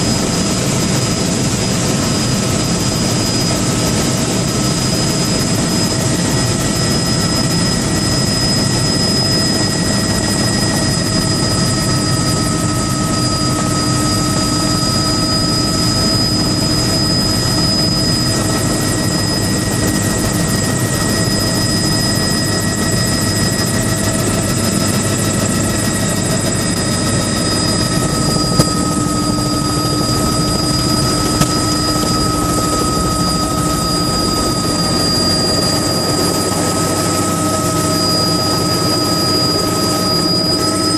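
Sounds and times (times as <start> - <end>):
loud engine drone: 0.0 - 40.9
high whining tones: 5.8 - 40.9.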